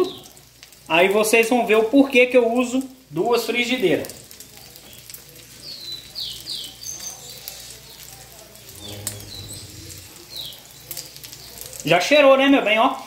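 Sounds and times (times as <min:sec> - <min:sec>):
omelette sizzling in pan: 0:00.0 - 0:13.0
small bird chirping: 0:08.7 - 0:11.7.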